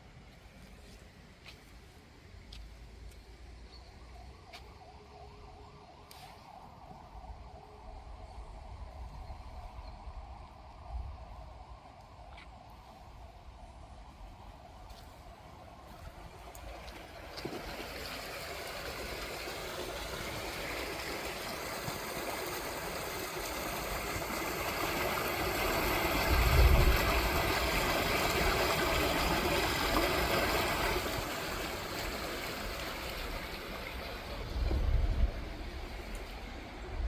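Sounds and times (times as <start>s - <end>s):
stream rushing: 16.6s - 37.0s.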